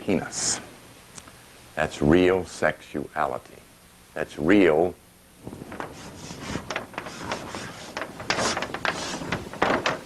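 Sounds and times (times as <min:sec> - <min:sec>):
rubbing and scraping strokes: 0:05.5 - 0:10.0.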